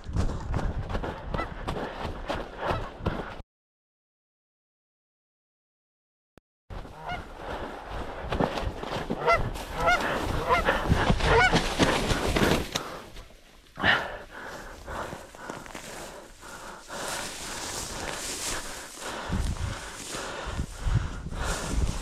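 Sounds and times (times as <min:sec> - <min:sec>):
wind noise: 0:00.0 - 0:02.3, 0:08.2 - 0:12.6, 0:17.2 - 0:22.0
geese honking: 0:06.8 - 0:07.3, 0:09.2 - 0:11.6.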